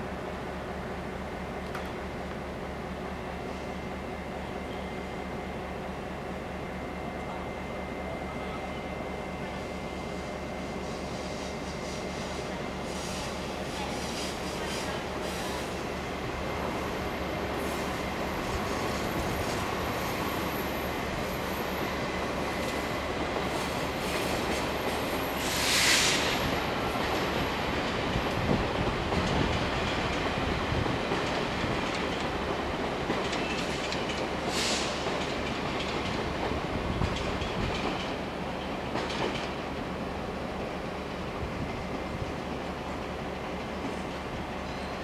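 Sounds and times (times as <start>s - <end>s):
train rumble: 0.0s - 45.0s
short hissing bursts: 25.4s - 26.4s.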